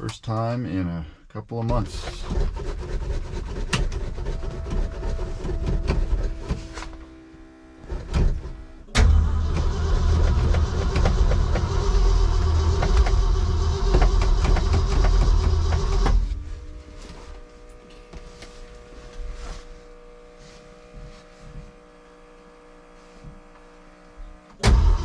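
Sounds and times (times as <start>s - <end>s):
truck engine starter cranking: 8.9s - 16.3s, 24.6s - 25.0s.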